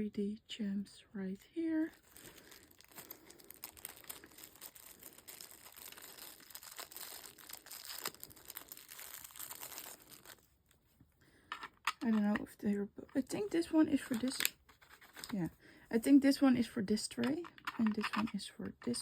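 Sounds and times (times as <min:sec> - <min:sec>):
packaging crinkling and rustling: 0:01.9 - 0:10.5, 0:14.0 - 0:15.5.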